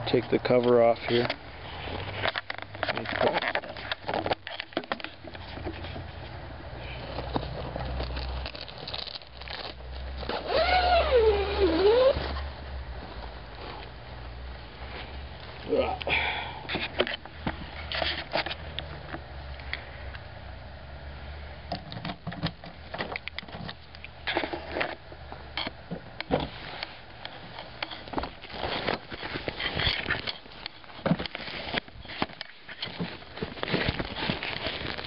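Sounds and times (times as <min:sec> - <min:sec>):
fabric cover rustling: 0:07.0 - 0:14.0, 0:27.9 - 0:35.0.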